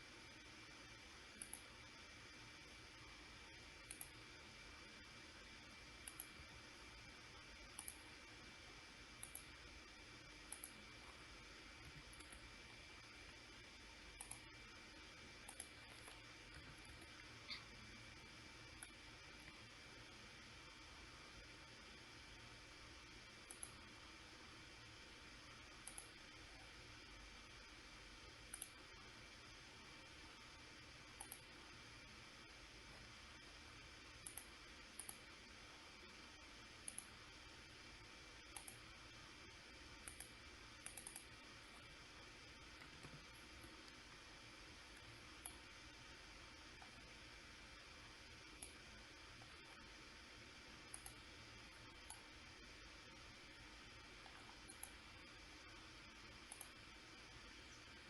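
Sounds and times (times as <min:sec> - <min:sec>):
faint room hum: 0:00.0 - 0:58.0
low steady hiss: 0:00.0 - 0:58.0
computer mouse double-clicks: 0:01.3 - 0:01.7, 0:03.8 - 0:04.2, 0:06.0 - 0:06.4, 0:07.7 - 0:08.1, 0:09.2 - 0:09.6, 0:10.5 - 0:10.8, 0:14.1 - 0:14.6, 0:15.4 - 0:17.7, 0:23.4 - 0:23.8, 0:25.8 - 0:26.2, 0:28.5 - 0:28.8, 0:31.2 - 0:31.5, 0:34.2 - 0:35.3, 0:36.8 - 0:37.2, 0:38.5 - 0:38.8, 0:40.0 - 0:41.4, 0:50.9 - 0:51.2, 0:54.2 - 0:55.0, 0:56.4 - 0:56.8.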